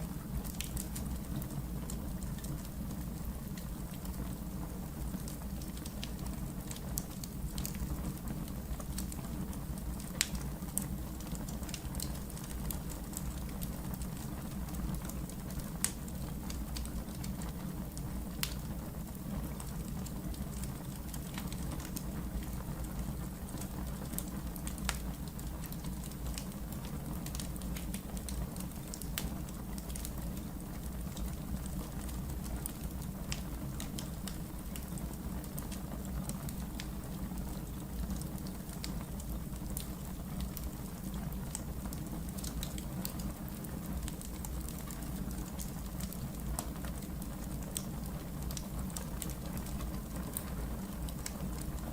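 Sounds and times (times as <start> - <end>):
fire crackling and popping: 0.0 - 51.9
fire low rumble: 0.0 - 51.9.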